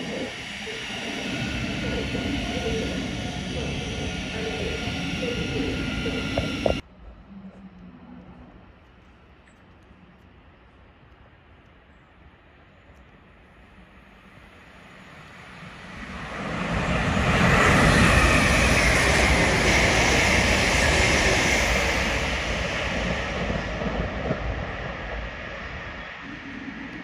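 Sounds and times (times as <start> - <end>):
train passing at speed: 0.0 - 6.9, 13.4 - 27.0.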